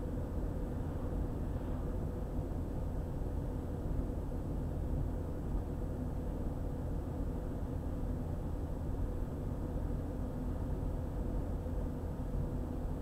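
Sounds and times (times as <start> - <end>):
faint steady hum: 0.0 - 13.0
road and engine rumble: 0.0 - 13.0.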